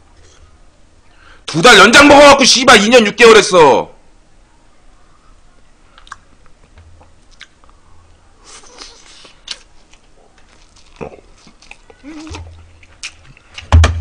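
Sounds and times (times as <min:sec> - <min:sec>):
sharp mouth clicks: 0:06.0 - 0:06.4, 0:07.0 - 0:07.8
chewing and mouth sounds: 0:06.0 - 0:07.8, 0:08.4 - 0:13.7
thump: 0:13.7 - 0:14.0.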